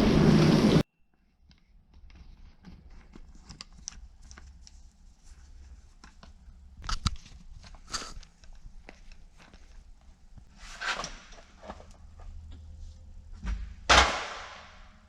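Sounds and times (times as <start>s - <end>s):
low hum: 0.0s - 0.8s
loud clunk: 13.4s - 14.9s.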